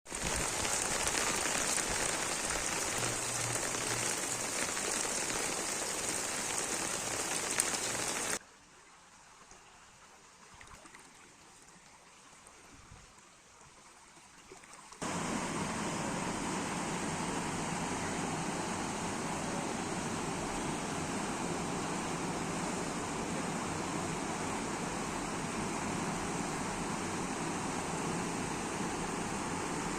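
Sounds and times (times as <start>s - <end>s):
heavy rain falling: 0.1s - 8.4s, 15.0s - 29.9s
water rushing: 0.1s - 8.4s, 14.5s - 29.9s.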